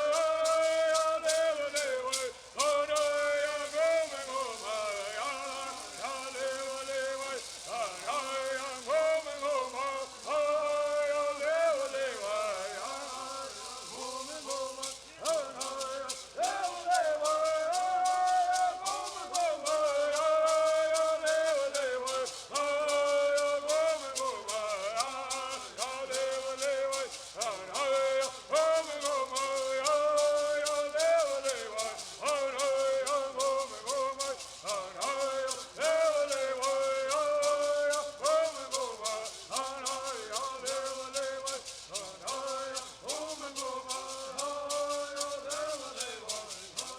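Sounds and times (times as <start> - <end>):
gourd rattles shaking: 0.0 - 46.9
group singing melody: 0.0 - 46.9.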